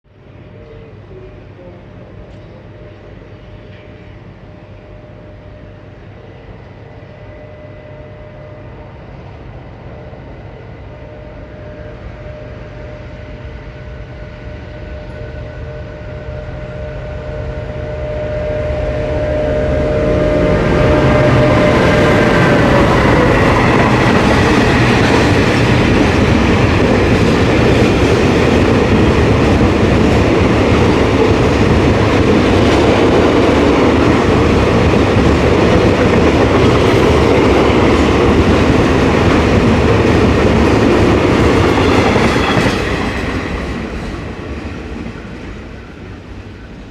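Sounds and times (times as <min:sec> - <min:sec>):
freight train rumbling past: 0:00.2 - 0:46.9
locomotive engine: 0:17.7 - 0:44.0.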